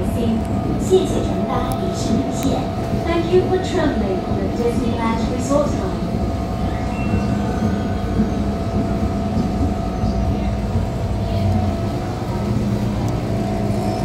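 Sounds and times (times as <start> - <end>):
constant hum: 0.0 - 14.0
train rumbling: 0.0 - 14.0.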